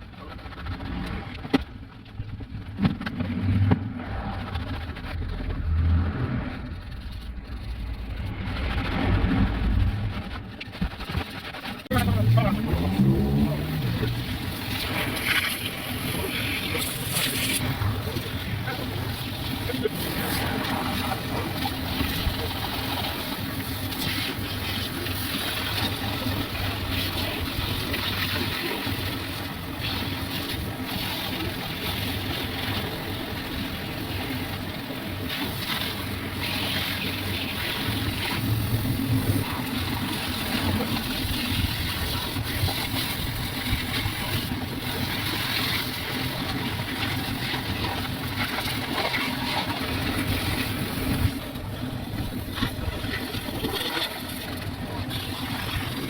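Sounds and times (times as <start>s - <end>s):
pressure washer motor hum: 6.6s - 56.0s
water spray hiss: 12.1s - 25.9s.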